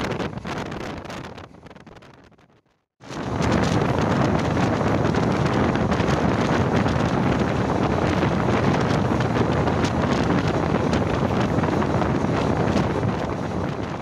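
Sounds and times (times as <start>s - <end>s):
wind buffeting microphone: 0.0s - 14.0s
train coaches running on track: 3.1s - 14.0s.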